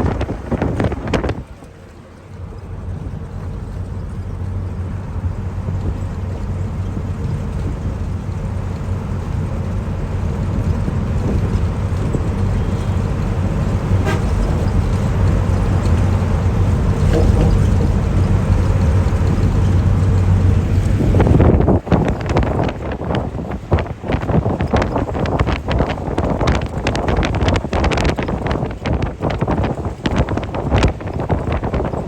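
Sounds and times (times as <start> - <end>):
moving vehicle rumble: 0.0 - 32.0
faint horn-like tone: 14.0 - 14.6.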